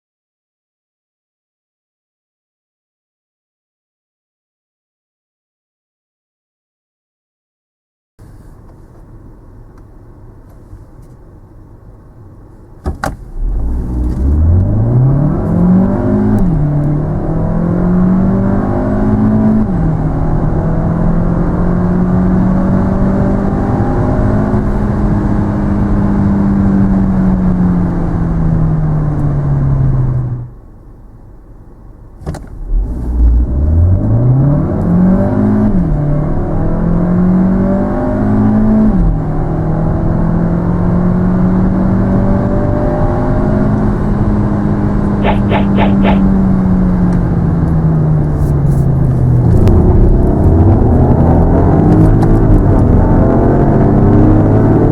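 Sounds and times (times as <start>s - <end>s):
car engine accelerating: 13.3s - 30.4s, 32.6s - 54.9s.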